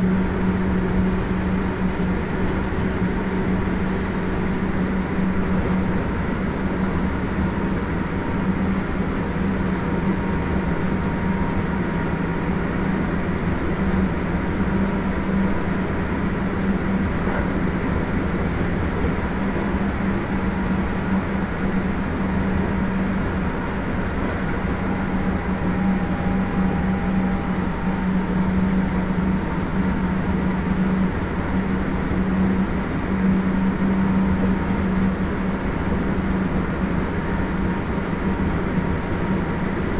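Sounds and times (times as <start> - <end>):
electric train motor hum: 0.0 - 39.9
wheel and rail rumble: 0.0 - 39.9
faint high tones: 24.6 - 29.2.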